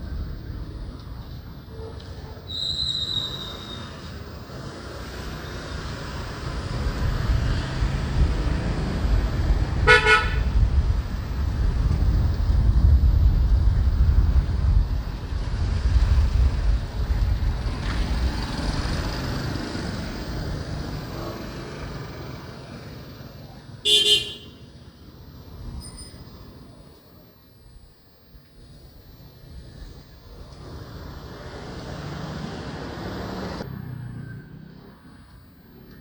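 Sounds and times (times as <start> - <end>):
street traffic rumble: 0.0 - 36.0
vehicle horn toots: 9.8 - 10.6, 23.8 - 24.6.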